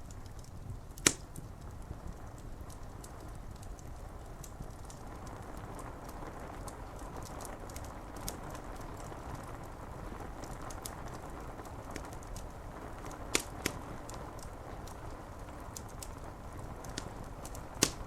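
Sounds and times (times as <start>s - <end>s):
steady rain: 0.0s - 18.0s
wood fire crackling: 0.0s - 18.0s.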